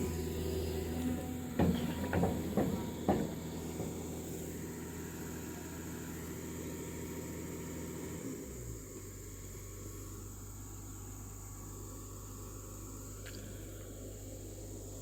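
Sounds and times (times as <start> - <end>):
heavy machinery diesel engine: 0.0 - 15.0
sharp knocks: 1.6 - 4.4.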